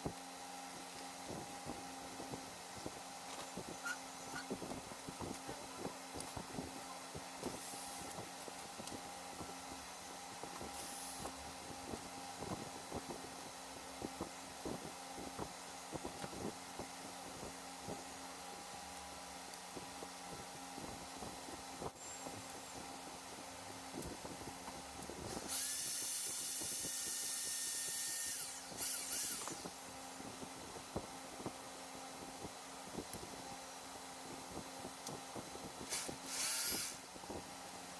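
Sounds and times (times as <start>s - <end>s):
steady low hum: 0.0s - 37.9s
hammer drill motor whining: 25.3s - 29.8s, 35.9s - 37.0s.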